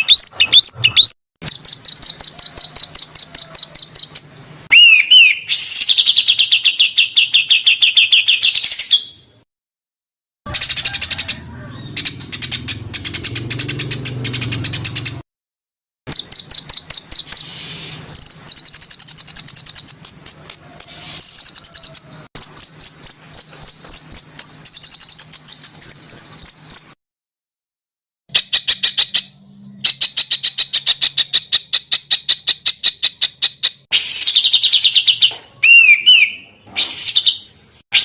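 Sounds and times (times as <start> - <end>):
songbird rapid high chirps: 0.0 - 9.1, 10.5 - 15.2, 16.1 - 27.0.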